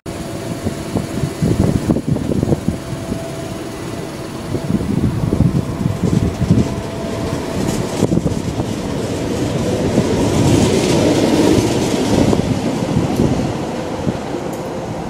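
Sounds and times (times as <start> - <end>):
train wheel and rail noise: 0.0 - 15.0.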